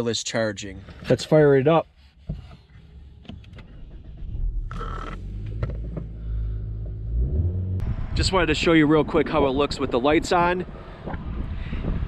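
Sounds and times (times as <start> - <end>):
car engine idling: 2.6 - 8.7
starter motor cranking: 3.4 - 6.1.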